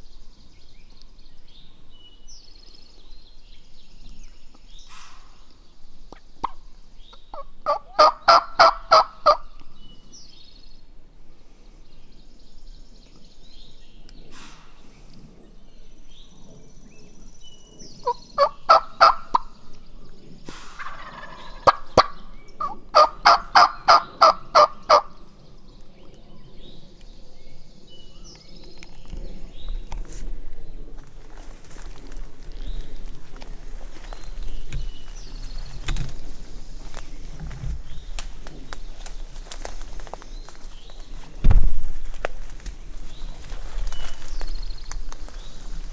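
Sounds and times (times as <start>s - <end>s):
songbirds chirping faintly: 0.0s - 45.9s
turkey yelping: 7.4s - 9.4s, 18.0s - 19.5s, 20.8s - 25.1s.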